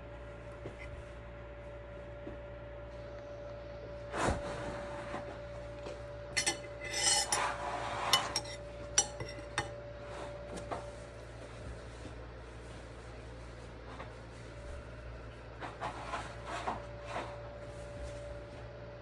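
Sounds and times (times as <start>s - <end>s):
utensils clinking on dishes: 6.4s - 9.8s.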